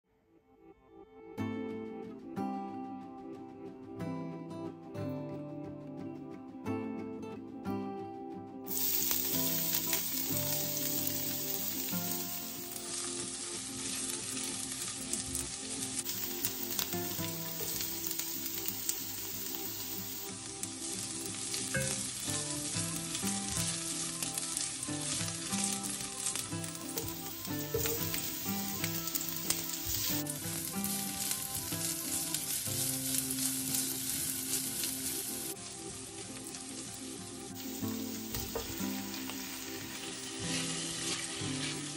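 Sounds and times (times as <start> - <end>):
soft background music: 0.1 - 41.9
garlic and onion sizzling in oil: 8.7 - 41.9
spatula stirring in pot: 40.4 - 41.9.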